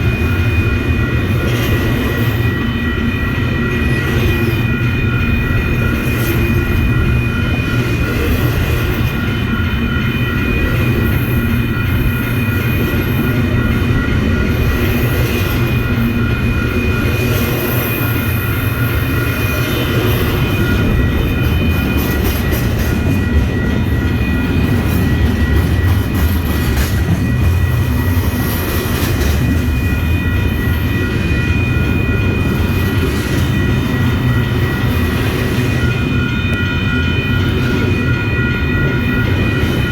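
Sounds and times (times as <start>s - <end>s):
high ringing tones: 0.0s - 39.9s
train rumbling past: 0.0s - 39.9s
train wheel clicks: 24.6s - 27.2s.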